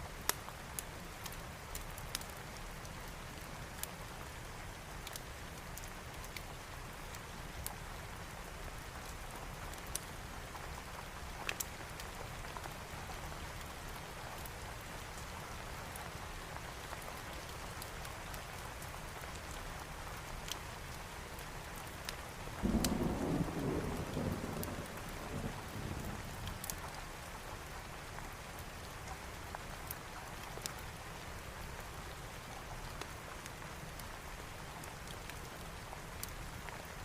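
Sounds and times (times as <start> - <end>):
heavy rain: 0.0 - 37.0
thunder rumbling: 22.6 - 26.4.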